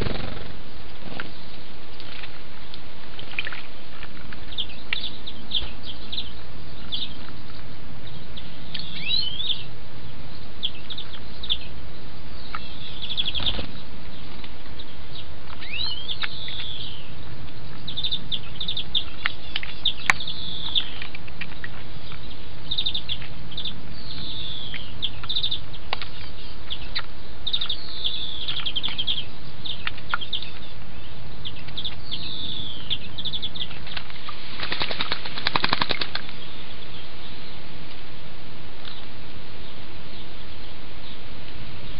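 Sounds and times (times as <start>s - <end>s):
rapid wing fluttering: 0.0s - 1.2s, 33.8s - 36.4s
sparrows chirping: 0.0s - 37.9s, 38.8s - 41.9s.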